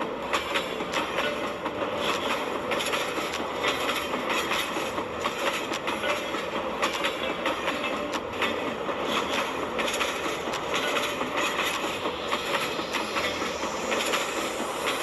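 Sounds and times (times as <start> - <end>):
train rattling along track: 0.0 - 15.0
wheels clicking over rail joints: 0.0 - 15.0.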